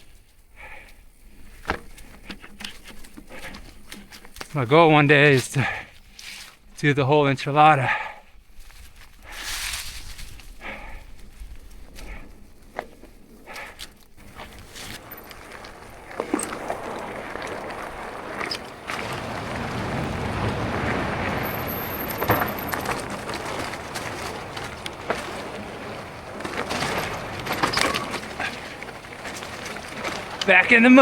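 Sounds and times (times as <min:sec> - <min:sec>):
mountain bike rolling on dirt: 0:00.0 - 0:06.8, 0:07.8 - 0:31.0
bike knocking and clattering: 0:12.0 - 0:31.0.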